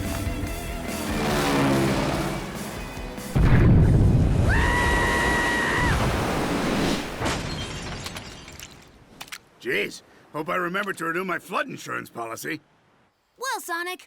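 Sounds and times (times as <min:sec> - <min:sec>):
cartoon explosion boom: 0:03.3 - 0:04.7.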